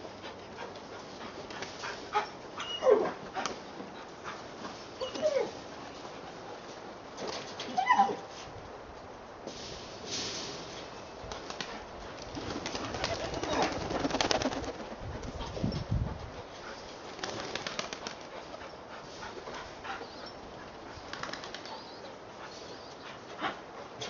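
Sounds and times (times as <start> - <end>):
pigeon wings flapping: 11.3 - 15.0, 17.1 - 18.3, 21.1 - 21.8.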